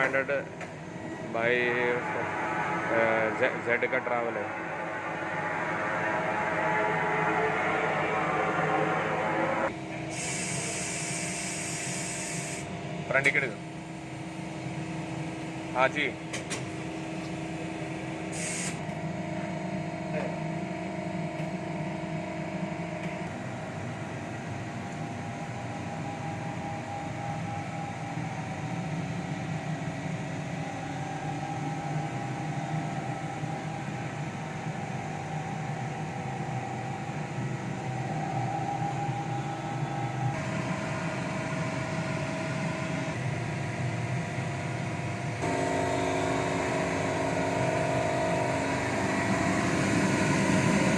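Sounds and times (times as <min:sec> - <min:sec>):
lathe machine hum: 0:00.0 - 0:09.9, 0:22.3 - 0:50.9
whining tones changing pitch: 0:00.8 - 0:09.8.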